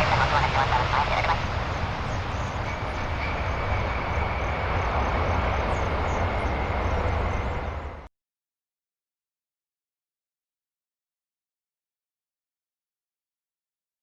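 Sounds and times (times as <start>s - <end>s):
aircraft engines rumbling: 0.0s - 8.1s.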